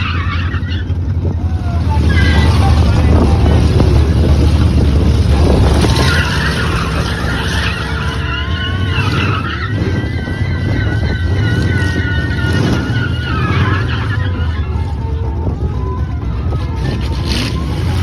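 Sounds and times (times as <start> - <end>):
truck engine running hard: 0.0 - 18.0.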